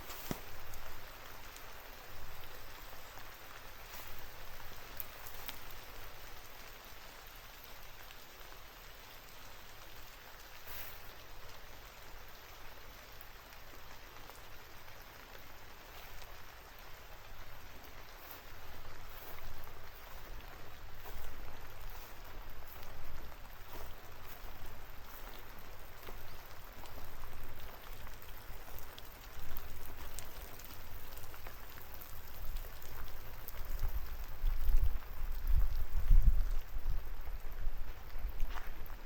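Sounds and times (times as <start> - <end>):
raindrop hits close by: 0.0 - 39.0
steady rain hiss: 0.0 - 39.0.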